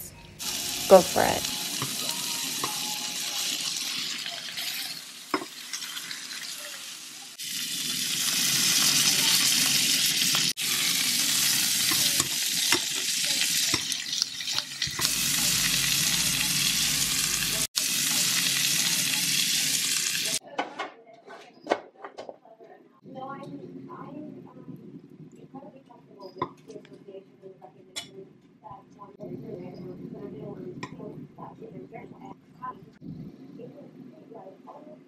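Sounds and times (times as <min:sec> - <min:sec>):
steak sizzling in a pan: 0:00.4 - 0:20.4.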